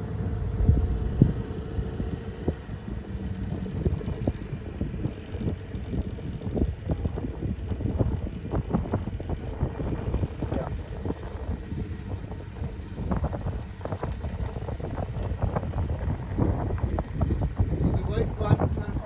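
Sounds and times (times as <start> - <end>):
boat motor running: 0.0 - 19.0
wind buffeting microphone: 0.0 - 19.0.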